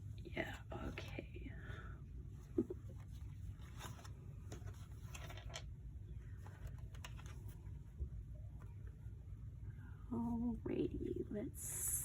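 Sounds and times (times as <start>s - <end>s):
low steady hum: 0.0s - 12.0s
paper rustling: 2.8s - 7.9s.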